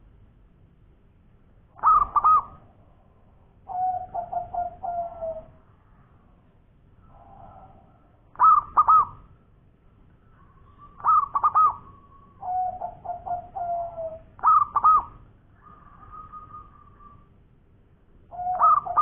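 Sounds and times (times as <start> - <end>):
dove cooing: 1.8 - 2.7, 3.7 - 5.6, 8.3 - 9.3, 10.4 - 17.3, 18.3 - 19.0.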